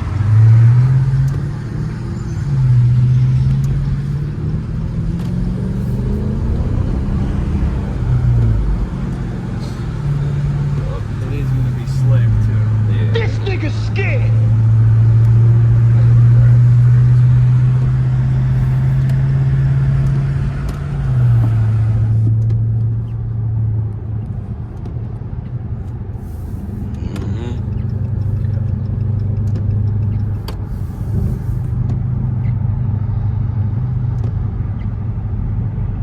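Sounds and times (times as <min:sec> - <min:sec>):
car engine droning while driving: 0:00.0 - 0:36.0.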